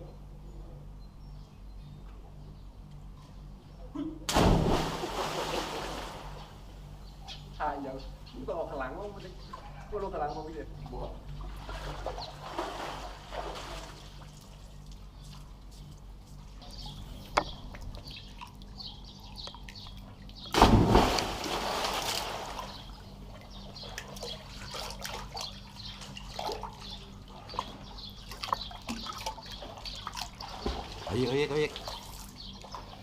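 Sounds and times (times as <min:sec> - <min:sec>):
loud water splash: 0:04.3 - 0:06.3, 0:20.6 - 0:22.7
water sloshing and dripping: 0:04.3 - 0:06.5, 0:10.5 - 0:16.1, 0:17.4 - 0:33.0.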